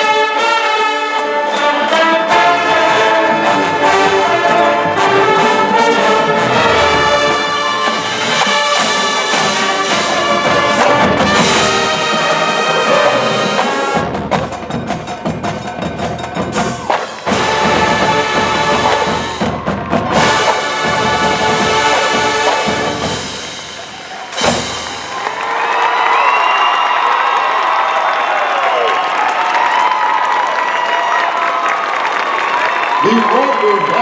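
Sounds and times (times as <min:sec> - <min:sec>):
marching band playing: 0:00.0 - 0:26.3
percussion: 0:00.0 - 0:34.0.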